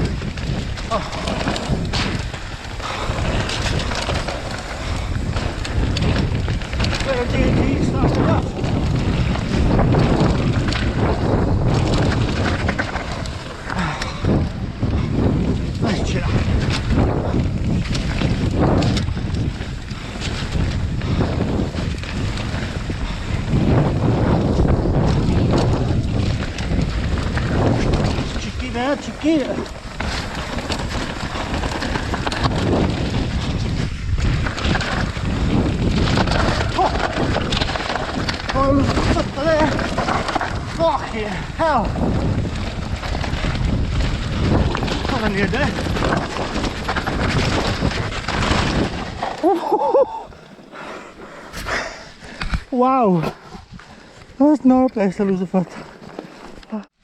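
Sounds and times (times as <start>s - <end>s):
wind rushing over microphone: 0.0s - 54.9s
bike rattling: 0.0s - 56.7s
low rumble: 29.6s - 33.8s
short knocks on rough trail: 29.6s - 33.8s.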